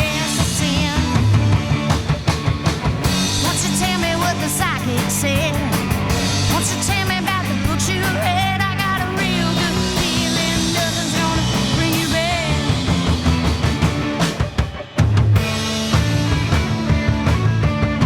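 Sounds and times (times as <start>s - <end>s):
person singing: 0.0s - 1.4s, 3.4s - 13.1s
drums: 0.0s - 18.0s
rock band playing live: 0.0s - 18.0s.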